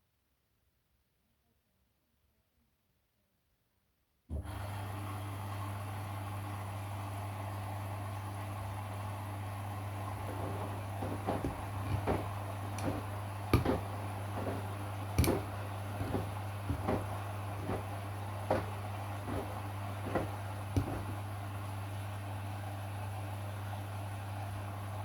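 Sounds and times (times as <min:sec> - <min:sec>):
washing machine humming: 0:04.3 - 0:25.0
washing machine clicks and knocks: 0:10.1 - 0:21.4.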